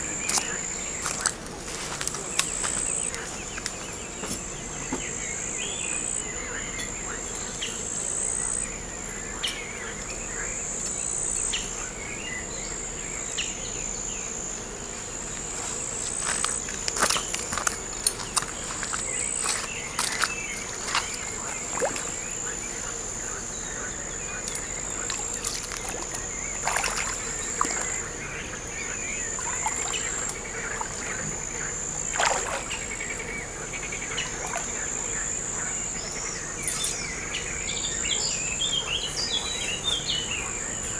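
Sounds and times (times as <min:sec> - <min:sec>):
insects shrilling buzz: 0:12.9 - 0:40.9.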